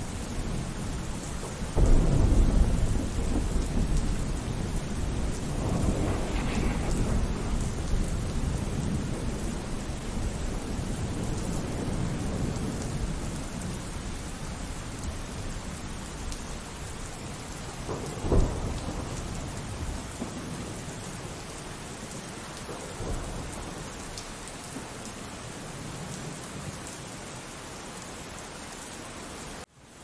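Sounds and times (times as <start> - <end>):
thunder rumbling: 0.0 - 21.6
steady rain: 0.0 - 30.0
loud thunderclap: 1.4 - 13.7, 17.7 - 20.7.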